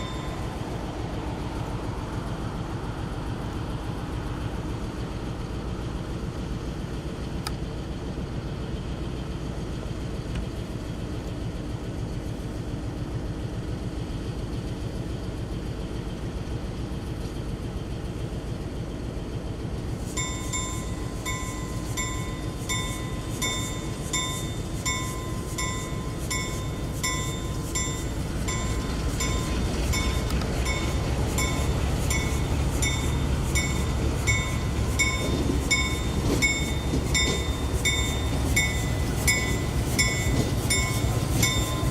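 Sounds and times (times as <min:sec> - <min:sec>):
bell ringing: 0:00.0 - 0:00.5
diesel train rumbling: 0:00.0 - 0:41.9.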